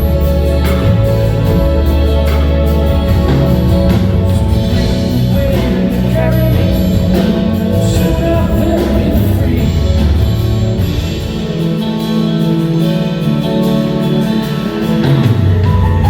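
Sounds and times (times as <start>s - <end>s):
person singing: 0.0s - 11.0s
band playing soft-rock ballad: 0.0s - 16.0s
guitar: 0.0s - 16.0s.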